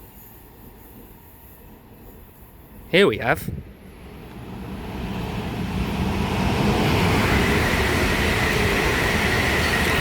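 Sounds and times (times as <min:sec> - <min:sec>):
electric trains running by: 0:00.0 - 0:10.0.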